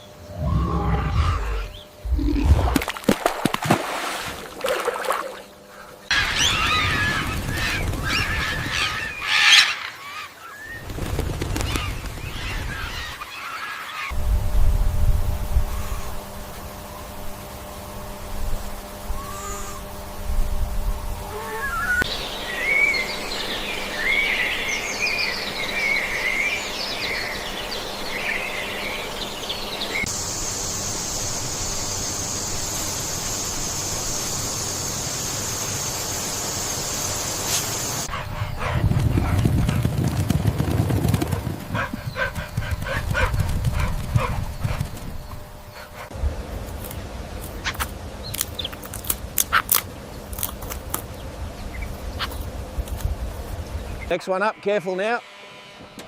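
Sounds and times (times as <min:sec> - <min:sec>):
animal wavering high chirps: 0:00.0 - 0:02.6, 0:19.2 - 0:19.8, 0:21.2 - 0:27.5
low rough rumbling: 0:00.2 - 0:02.9.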